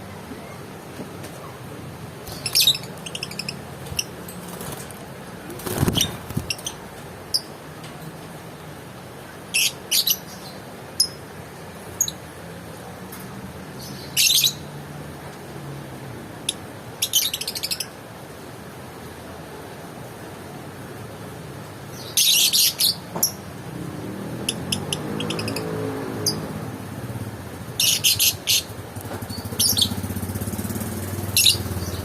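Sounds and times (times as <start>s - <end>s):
lovebird chirping: 2.3s - 4.2s.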